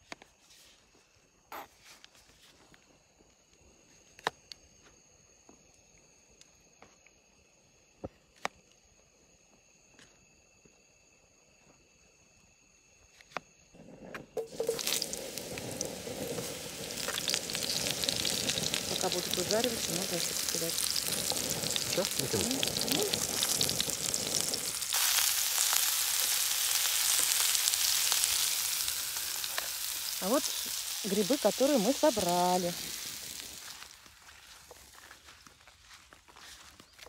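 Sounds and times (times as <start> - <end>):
potatoes sizzling in hot pan: 14.4 - 34.6.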